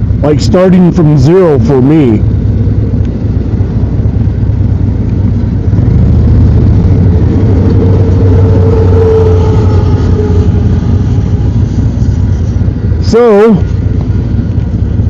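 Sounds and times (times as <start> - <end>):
motorcycle running: 0.0 - 15.0
wind rumble on microphone: 0.0 - 15.0
rising engine note: 5.5 - 15.0.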